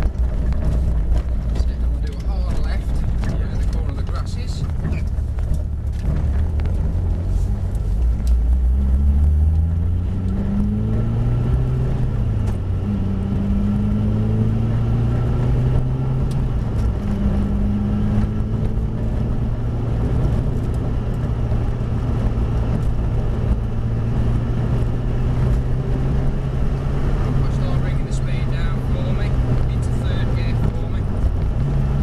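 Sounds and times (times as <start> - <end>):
car engine revving through gears: 0.0 - 32.0.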